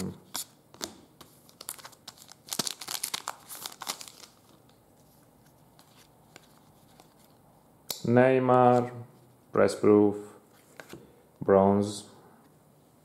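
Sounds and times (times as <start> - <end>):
cards and plastic wrapping rustling: 0.3 - 7.4.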